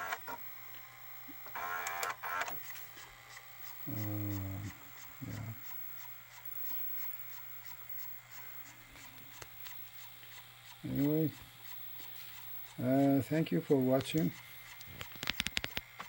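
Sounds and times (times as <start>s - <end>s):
tape mechanism whirring: 1.4s - 16.0s
faint regular ticking: 5.3s - 16.0s.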